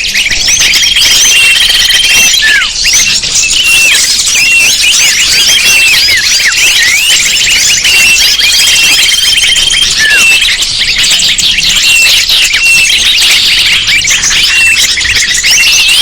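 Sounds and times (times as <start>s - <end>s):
small songbirds chirping and twittering: 0.0s - 16.0s.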